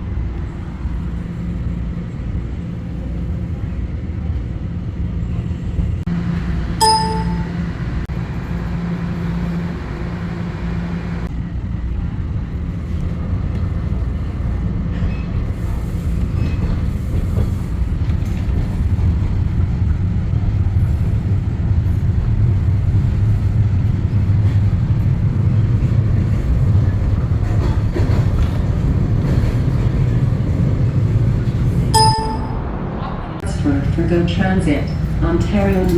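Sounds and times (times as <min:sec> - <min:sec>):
train wheels rumbling on rails: 0:00.0 - 0:35.9
brief chime: 0:06.8 - 0:07.7, 0:32.0 - 0:32.6.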